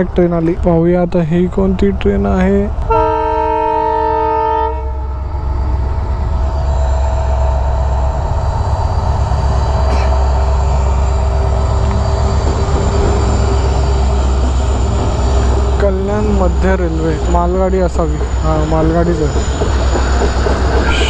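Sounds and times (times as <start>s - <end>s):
train rumbling past: 0.0s - 21.0s
locomotive horn: 2.8s - 5.0s, 20.8s - 21.0s.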